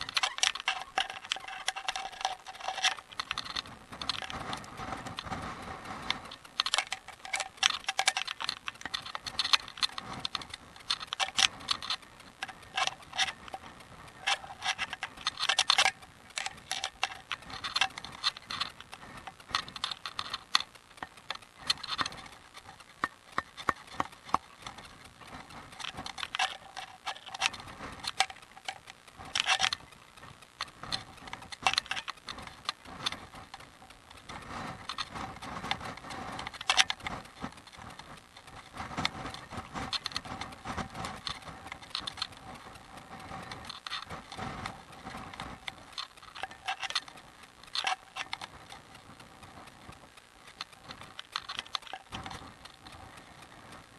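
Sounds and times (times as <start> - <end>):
bicycle rattling and ticking: 0.0 - 53.9.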